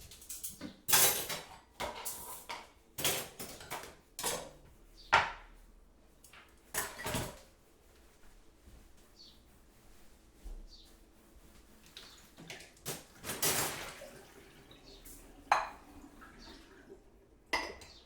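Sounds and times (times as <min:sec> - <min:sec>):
crockery and cutlery clinking: 0:00.0 - 0:04.6, 0:06.7 - 0:07.4, 0:15.1 - 0:16.5, 0:17.5 - 0:18.0.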